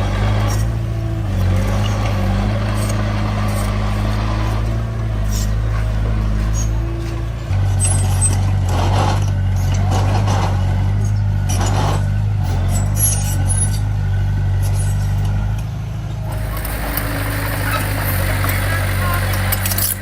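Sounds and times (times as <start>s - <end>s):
heavy diesel engine running: 0.0s - 20.0s
short noisy bursts: 16.3s - 20.0s.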